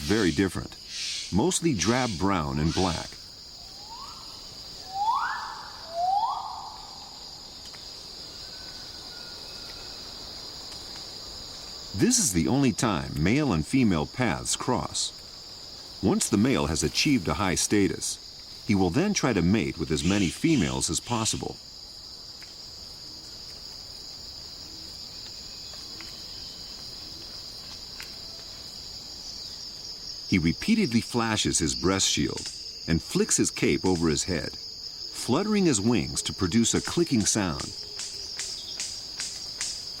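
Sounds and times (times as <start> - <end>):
high insect drone: 0.0 - 40.0
bird whistled call: 3.8 - 7.2.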